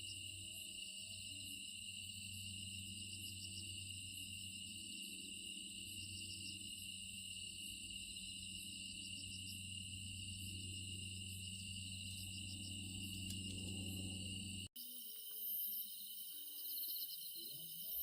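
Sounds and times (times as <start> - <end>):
insects chirring: 0.0 - 18.0
low hum: 2.0 - 14.7.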